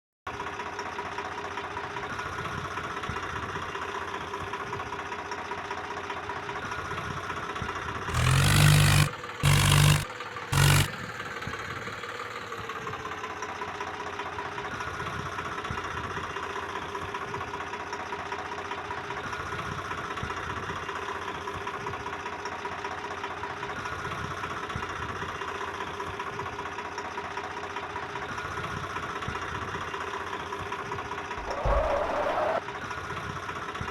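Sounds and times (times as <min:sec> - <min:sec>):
tractor engine running: 0:08.1 - 0:12.9
loud low-toned horn blasts: 0:10.6 - 0:10.9.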